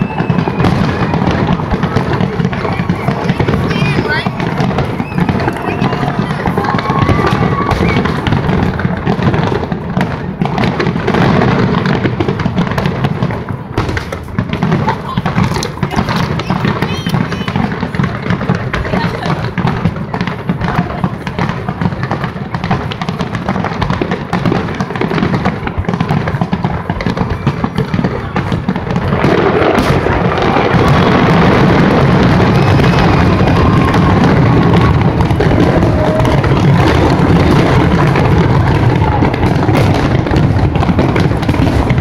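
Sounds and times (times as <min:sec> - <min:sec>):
firework shells bursting: 0:13.8 - 0:42.0.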